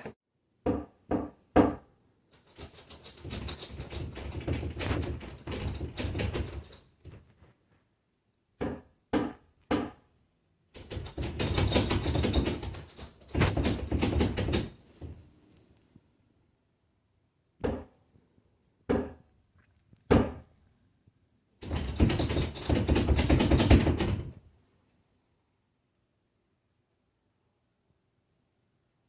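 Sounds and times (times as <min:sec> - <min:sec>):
scraping and rattling handling: 0:02.4 - 0:07.5, 0:10.8 - 0:15.2.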